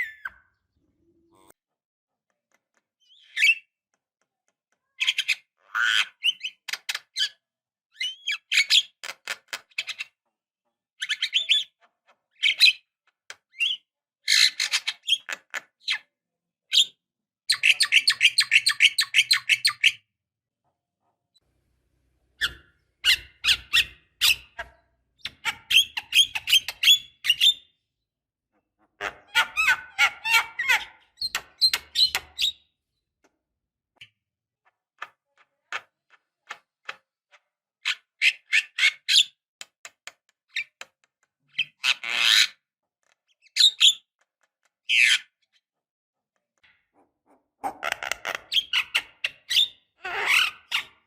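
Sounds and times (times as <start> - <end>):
bird clicks squeaks and whistles: 30.7 - 32.6.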